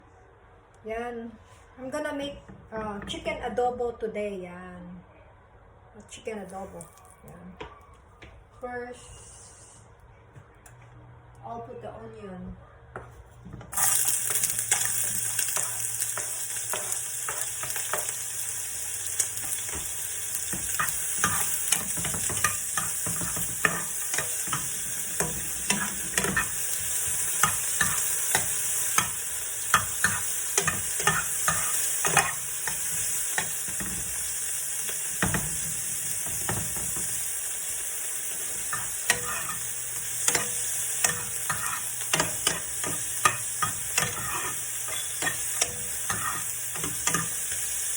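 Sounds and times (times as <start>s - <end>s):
onion sizzling in oil: 13.7s - 47.9s
utensil stirring in pan: 13.7s - 47.9s.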